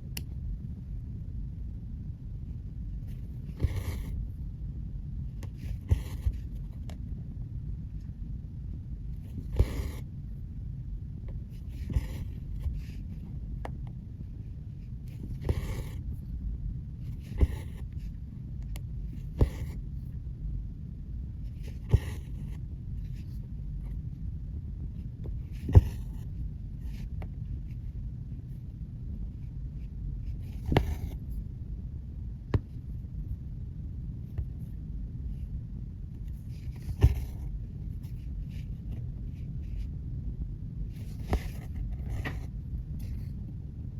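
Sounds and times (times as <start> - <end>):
low background hum: 0.0 - 43.9
low room noise rumble: 0.0 - 43.9
needle tapping through fabric: 17.2 - 18.1, 25.2 - 26.2, 30.5 - 31.2, 36.5 - 37.4.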